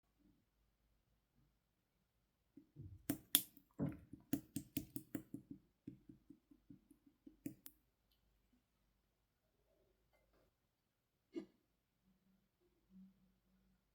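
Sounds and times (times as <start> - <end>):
slime squeezed wet clicks: 3.1 - 3.5, 4.4 - 5.2.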